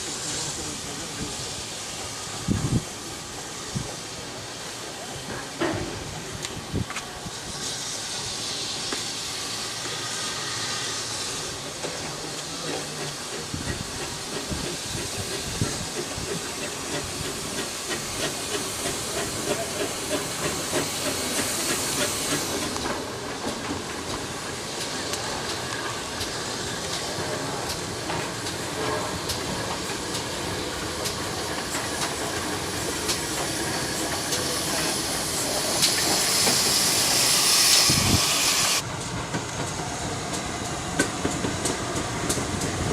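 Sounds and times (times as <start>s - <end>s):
steam hiss: 0.0s - 42.9s
train running noise: 0.0s - 42.9s.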